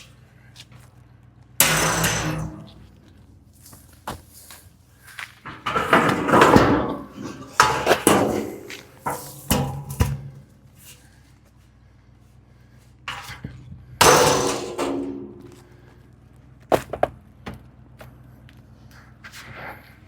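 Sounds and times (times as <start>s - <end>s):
knocks bangs and clattering: 1.6s - 3.0s, 5.4s - 10.5s, 13.1s - 16.0s.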